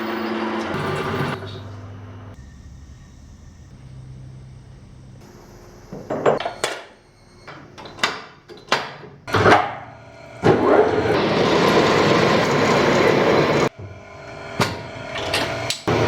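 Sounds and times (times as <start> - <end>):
machine tool running: 9.9 - 16.0.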